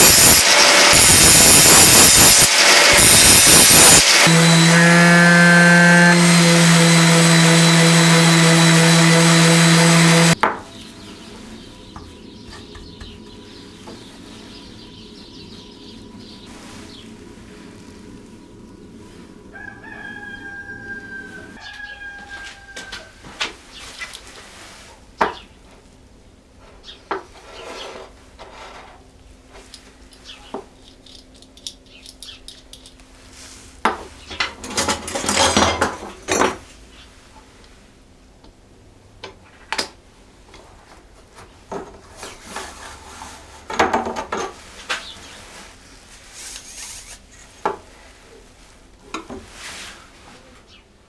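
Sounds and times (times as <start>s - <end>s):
objects scraping on work surface: 27.3s - 29.0s, 41.4s - 45.4s.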